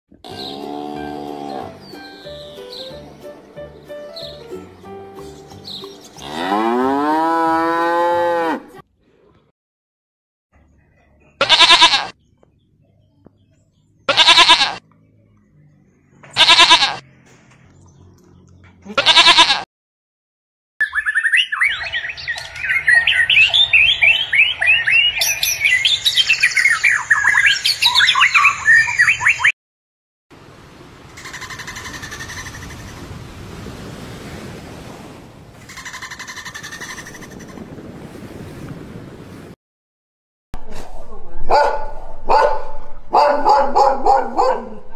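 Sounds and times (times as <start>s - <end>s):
cow mooing: 0.2s - 1.8s, 6.2s - 8.8s
chaffinch singing: 1.4s - 3.0s, 3.6s - 6.3s, 20.8s - 29.5s
sheep bleating: 11.4s - 12.2s, 14.1s - 14.8s, 16.4s - 17.0s, 18.8s - 19.6s.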